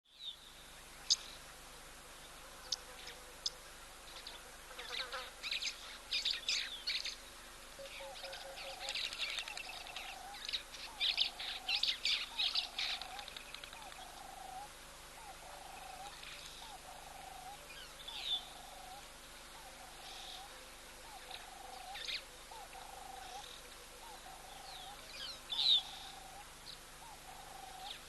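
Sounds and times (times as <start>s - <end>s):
low repeated bird call: 7.8s - 28.0s.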